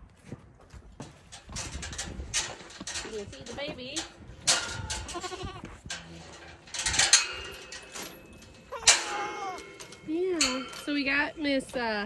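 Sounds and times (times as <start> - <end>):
goats bleating: 4.9 - 5.8, 8.7 - 9.8.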